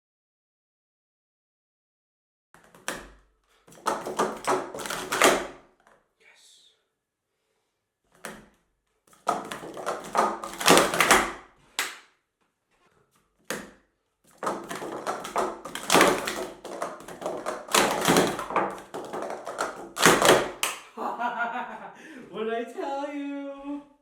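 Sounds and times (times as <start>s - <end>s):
plastic cups clattering: 3.7s - 5.5s, 9.1s - 11.4s, 14.4s - 20.8s.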